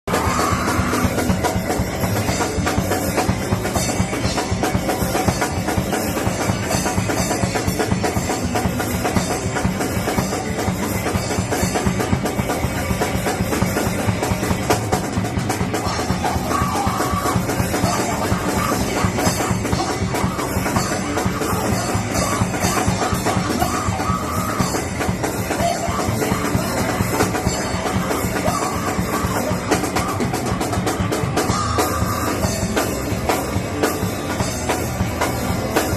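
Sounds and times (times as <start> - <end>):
drum kit played fast: 0.0 - 35.9
electric guitar: 0.0 - 35.9
rock band playing live: 0.0 - 35.9.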